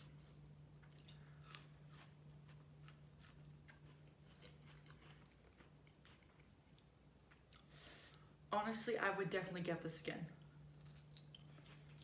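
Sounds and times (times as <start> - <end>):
chewing sandwich: 0.8 - 7.7.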